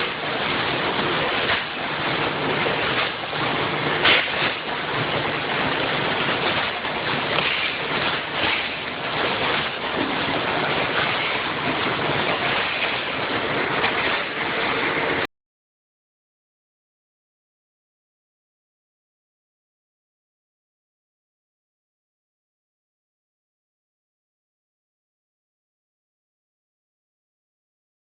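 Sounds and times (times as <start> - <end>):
packaging machine rushing clatter: 0.0 - 15.2
sharp machine knocks: 4.0 - 4.7.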